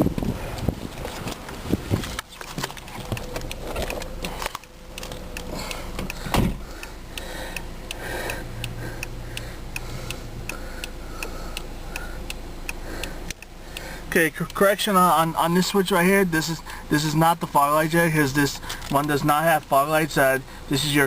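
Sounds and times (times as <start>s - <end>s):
clunks and handling noise: 1.0s - 6.8s
car door shutting: 1.1s - 6.8s
turn signal ticking: 2.2s - 21.0s.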